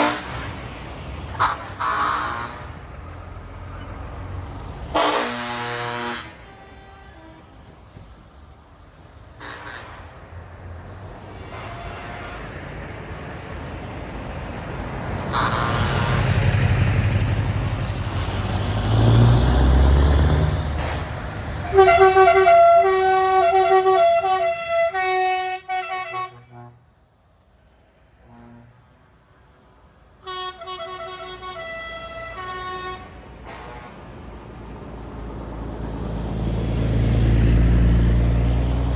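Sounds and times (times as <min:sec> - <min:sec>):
truck air horn blasts: 0:00.0 - 0:00.6, 0:01.3 - 0:02.8, 0:04.9 - 0:07.6, 0:09.4 - 0:10.1, 0:11.2 - 0:12.9, 0:15.2 - 0:16.4, 0:21.6 - 0:26.9, 0:28.2 - 0:29.0, 0:30.2 - 0:34.2
truck diesel engine rumbling: 0:00.0 - 0:38.9.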